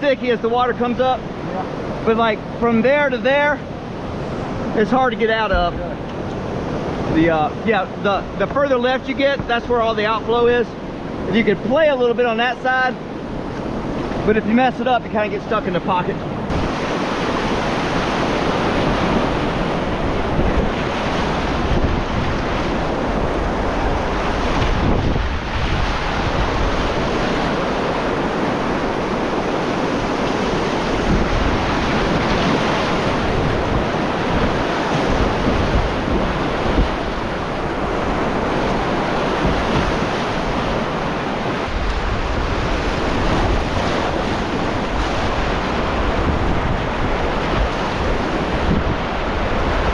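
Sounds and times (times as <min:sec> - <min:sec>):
whitewater rushing: 0:00.0 - 0:49.9
wind buffeting microphone: 0:16.0 - 0:49.9.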